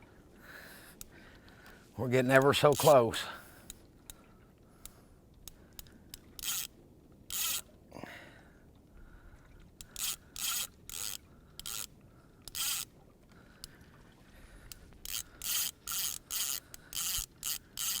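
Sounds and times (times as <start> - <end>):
small reel clicks: 2.3 - 3.0, 4.8 - 7.7, 9.8 - 12.9, 14.6 - 18.0
fishing reel rasping: 2.6 - 4.2, 4.8 - 7.7, 9.8 - 12.9, 14.6 - 18.0.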